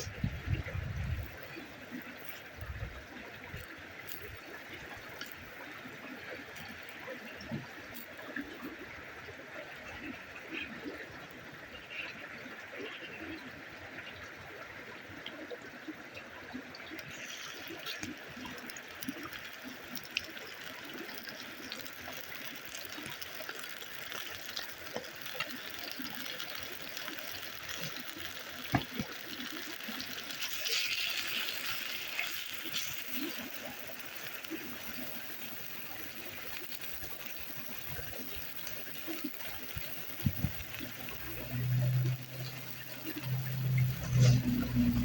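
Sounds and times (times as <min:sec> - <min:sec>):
water running: 0:16.9 - 0:45.0.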